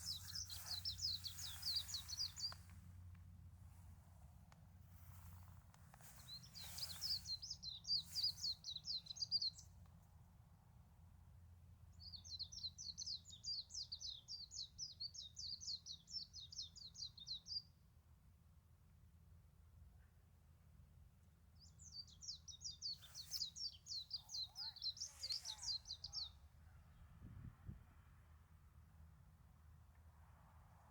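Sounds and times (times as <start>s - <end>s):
songbird singing trills: 0.0s - 2.8s, 6.1s - 9.6s, 21.6s - 26.4s.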